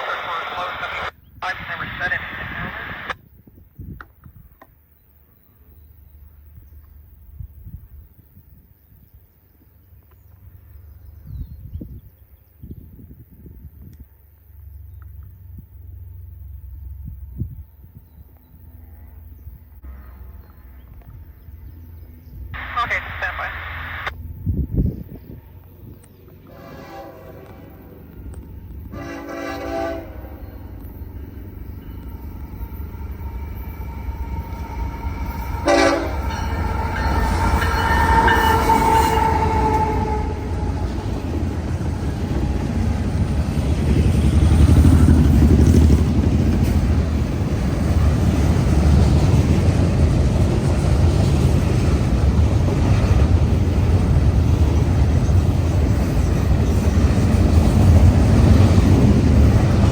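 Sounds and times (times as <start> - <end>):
train passing rumble: 0.0 - 59.9
locomotive horn blasts: 26.4 - 28.0, 28.9 - 30.6, 33.5 - 43.0.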